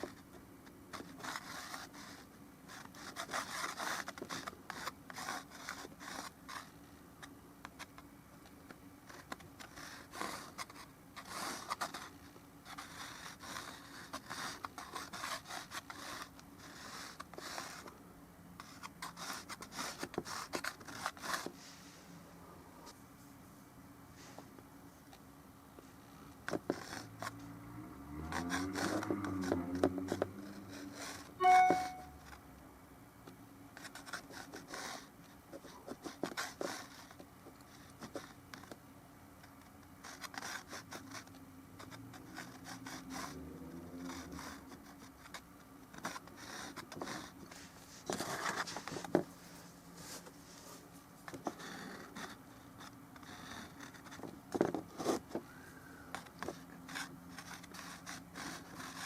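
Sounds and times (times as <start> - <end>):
brush scraping on canvas: 28.2 - 32.1
brief ringing tone: 31.4 - 32.2.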